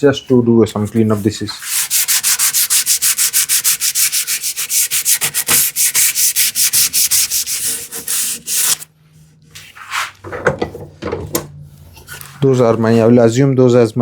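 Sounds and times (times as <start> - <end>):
sandpaper rubbing on wood: 1.6 - 8.9.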